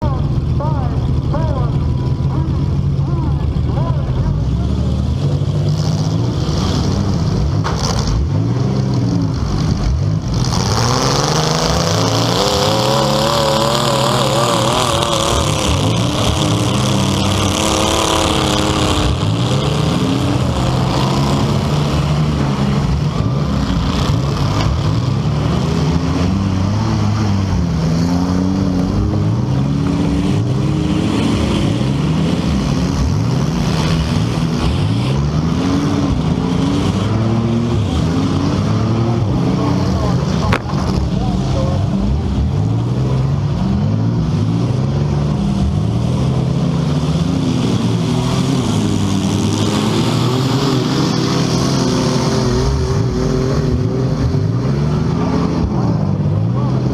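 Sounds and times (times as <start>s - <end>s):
car engines revving: 0.0s - 56.9s.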